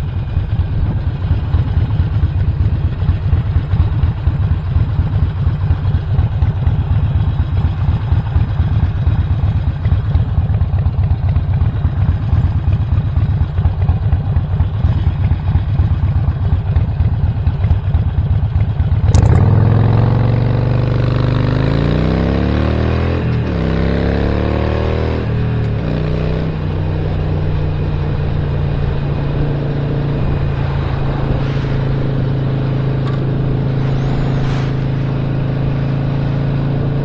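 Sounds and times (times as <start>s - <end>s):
motorcycle engine revving: 19.1s - 28.0s.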